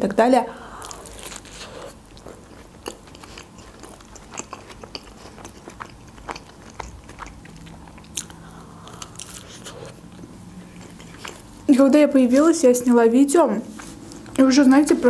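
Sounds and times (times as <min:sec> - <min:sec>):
biting into a burger: 0:00.8 - 0:11.5
wet chewing: 0:00.8 - 0:11.6.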